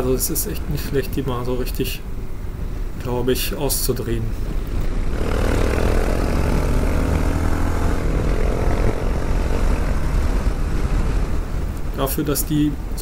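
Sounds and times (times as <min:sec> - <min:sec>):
wind rushing over microphone: 0:04.2 - 0:13.0
motorcycle engine running: 0:04.9 - 0:11.8.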